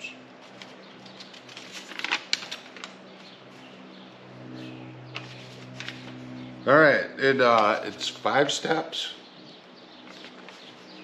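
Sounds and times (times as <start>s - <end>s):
low steady hum: 0.0s - 11.0s
paper crinkling and rustling: 0.4s - 3.0s, 5.2s - 6.2s, 10.0s - 11.0s.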